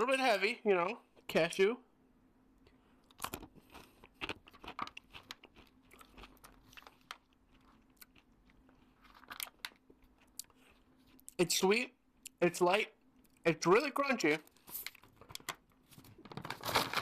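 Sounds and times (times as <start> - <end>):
person chewing crunchy nuts: 2.7 - 11.4.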